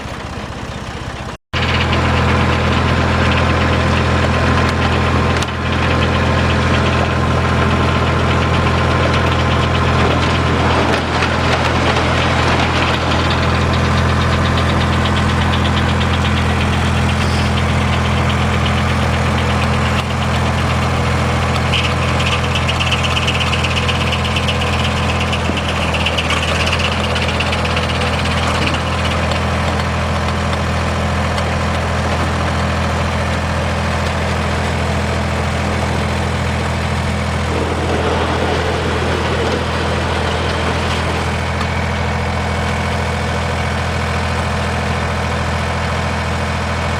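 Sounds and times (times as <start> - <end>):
sawmill engine running: 0.0 - 46.9.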